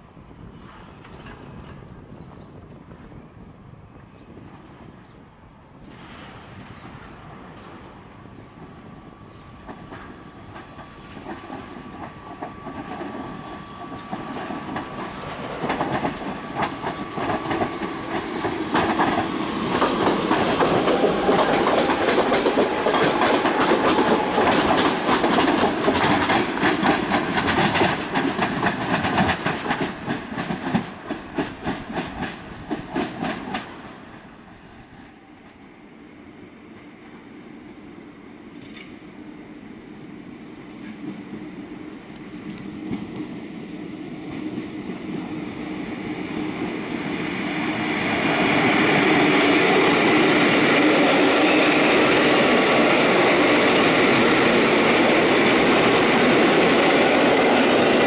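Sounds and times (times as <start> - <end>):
train whine: 0.0 - 58.0
train wheels clattering over rail joints: 9.6 - 33.8.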